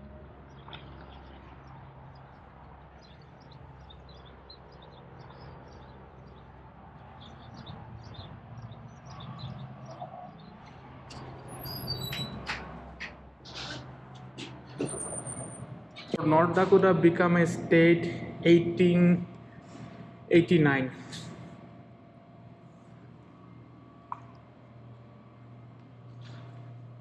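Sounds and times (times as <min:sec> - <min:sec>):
steady low hum: 0:00.0 - 0:27.0
small birds chirping: 0:00.4 - 0:12.4.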